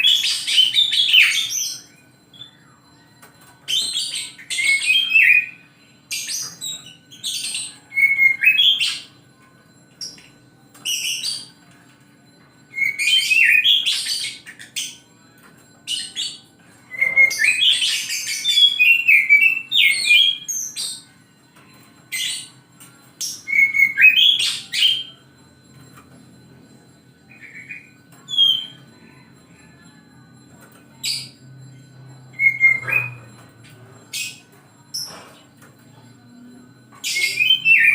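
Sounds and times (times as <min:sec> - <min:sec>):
magpie-robin singing: 0:00.0 - 0:09.2, 0:12.7 - 0:15.1, 0:15.8 - 0:21.1, 0:23.2 - 0:25.2, 0:27.3 - 0:29.2, 0:31.0 - 0:33.5, 0:37.0 - 0:37.9.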